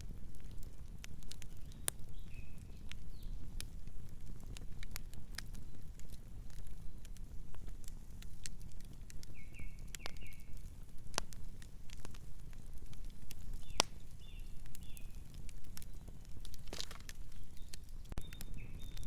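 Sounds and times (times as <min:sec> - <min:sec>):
wood fire crackling: 0:00.0 - 0:19.0
bird chirping: 0:01.6 - 0:03.4, 0:09.3 - 0:10.6, 0:13.6 - 0:15.2, 0:16.8 - 0:19.0.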